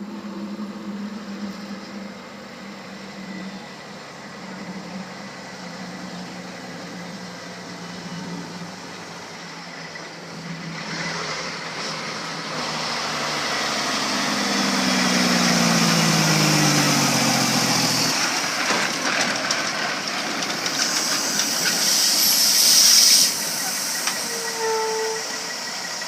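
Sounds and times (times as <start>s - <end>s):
truck engine running: 0.0s - 26.0s
high hiss: 20.6s - 26.0s.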